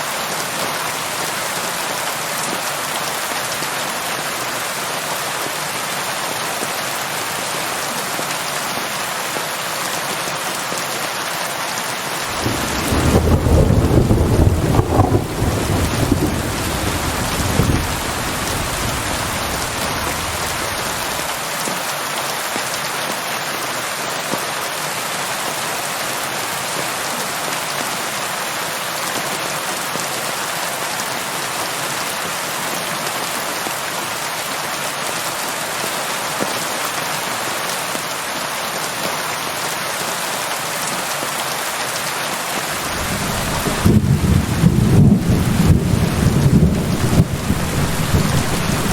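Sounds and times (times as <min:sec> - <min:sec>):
steady rain falling: 0:00.0 - 0:48.9
low thunder rumble: 0:12.3 - 0:21.3, 0:42.8 - 0:48.9.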